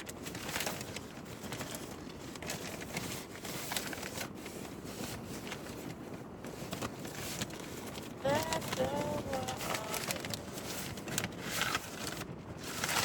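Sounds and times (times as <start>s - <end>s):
packaging crinkling: 6.6s - 13.0s.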